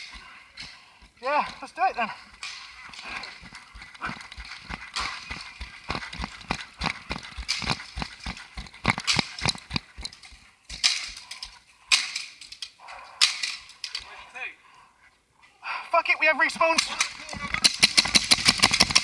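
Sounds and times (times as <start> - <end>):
running footsteps: 0.0 - 11.6.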